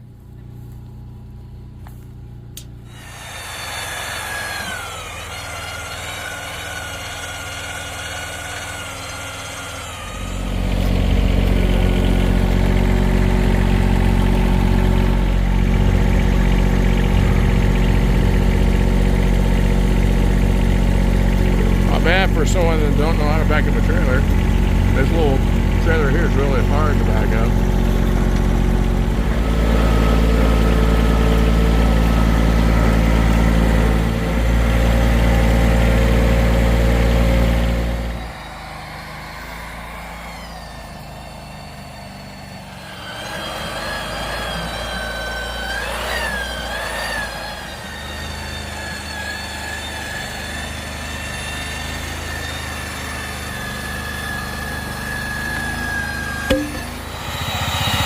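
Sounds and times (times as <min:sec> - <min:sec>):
steady high whine: 0:00.0 - 0:32.2, 0:56.2 - 0:58.0
vehicle engine running: 0:00.0 - 0:58.0.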